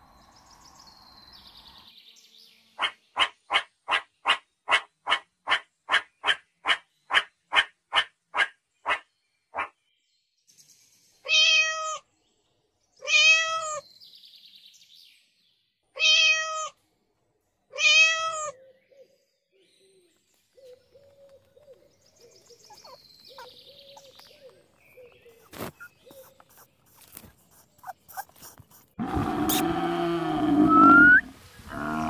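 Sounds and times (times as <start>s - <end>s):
cat meowing: 11.3s - 12.0s, 13.0s - 13.8s, 16.0s - 16.8s, 17.8s - 18.5s.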